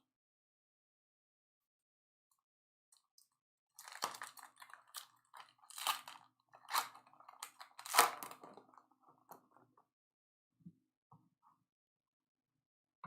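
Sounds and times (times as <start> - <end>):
cards rustling: 3.8 - 8.6
wrapper crinkling: 3.8 - 8.8.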